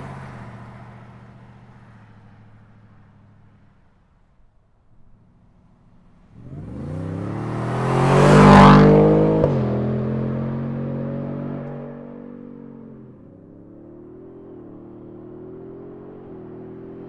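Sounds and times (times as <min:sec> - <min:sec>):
truck engine accelerating past: 0:06.4 - 0:13.3.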